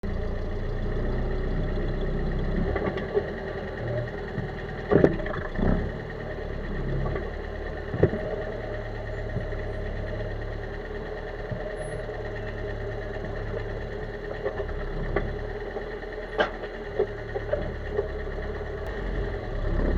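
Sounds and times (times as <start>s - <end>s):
car engine running: 0.0s - 19.9s
suspension knocks and creaks: 4.3s - 5.8s, 7.9s - 8.5s.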